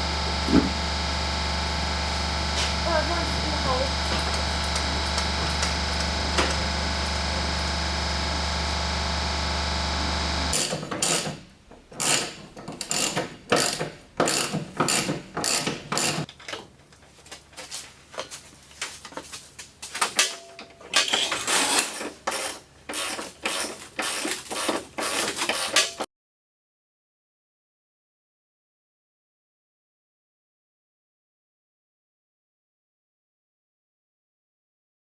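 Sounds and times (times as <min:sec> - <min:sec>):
steady hum: 0:00.0 - 0:10.6
hand ratchet strokes: 0:12.0 - 0:16.3, 0:21.1 - 0:26.0.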